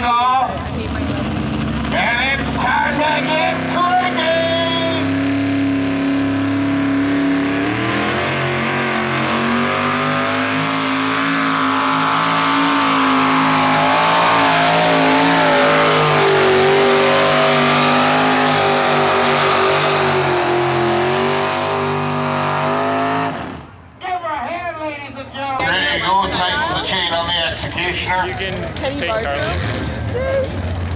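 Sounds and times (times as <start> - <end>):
truck engine revving under load: 0.5 - 23.9.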